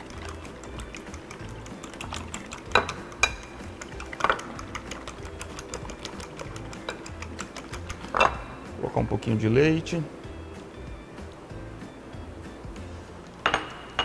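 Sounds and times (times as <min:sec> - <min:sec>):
kitchen utensils clicking: 0:00.0 - 0:08.5.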